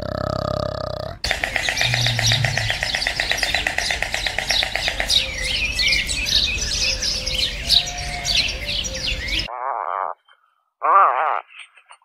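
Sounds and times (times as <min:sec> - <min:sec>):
birds chirping: 0:01.2 - 0:12.0
fast pulsing trill: 0:01.3 - 0:05.3.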